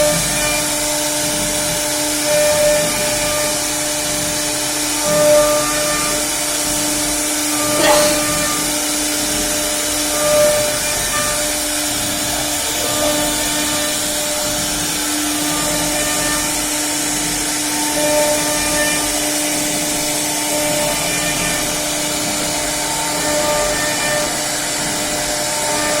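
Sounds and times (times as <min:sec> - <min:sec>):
cnc router hum and whine: 0:00.0 - 0:26.0.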